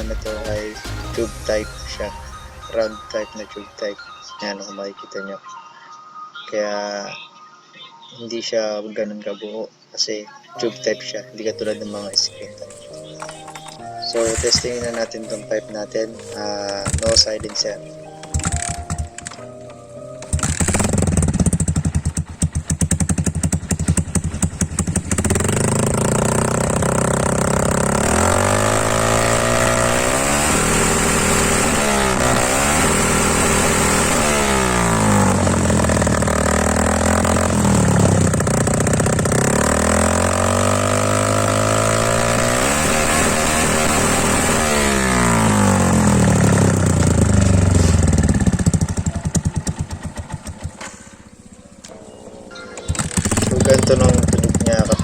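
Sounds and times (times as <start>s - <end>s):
motorcycle engine revving: 11.6s - 55.0s.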